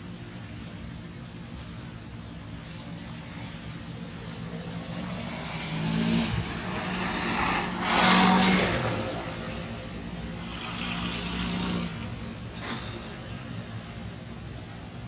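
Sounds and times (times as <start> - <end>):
motor vehicle passing: 4.2 - 12.4.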